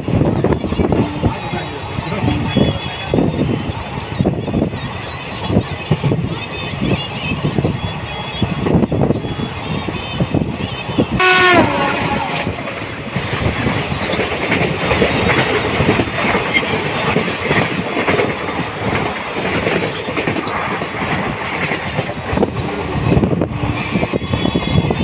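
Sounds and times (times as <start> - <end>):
train passing alongside: 0.0 - 25.0
train wheels clattering on rails: 9.8 - 25.0
train horn blast: 11.2 - 12.8.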